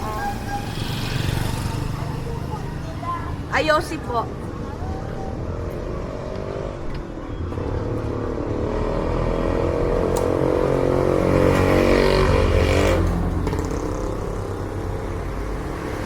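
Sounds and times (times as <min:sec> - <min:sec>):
vehicle engine passing by: 0:00.0 - 0:03.4, 0:07.6 - 0:16.0.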